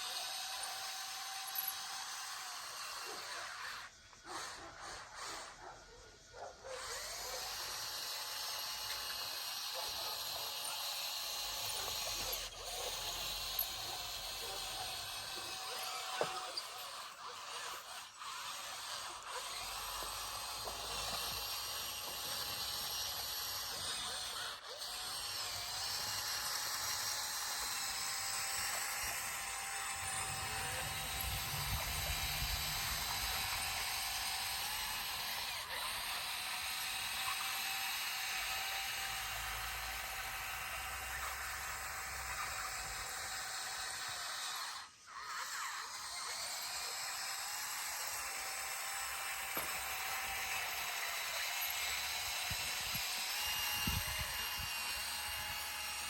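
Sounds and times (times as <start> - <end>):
bulldozer engine whining and rumbling: 28.8 - 35.7.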